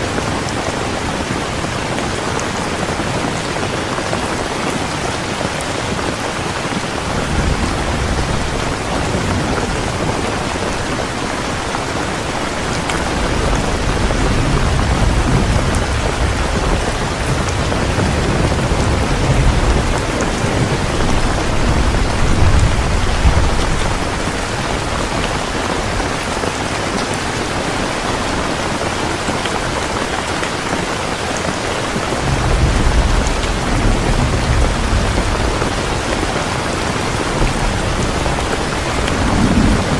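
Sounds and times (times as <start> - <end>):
heavy rain pouring: 0.0 - 39.9
thunder rumbling: 6.3 - 28.8, 31.9 - 39.9.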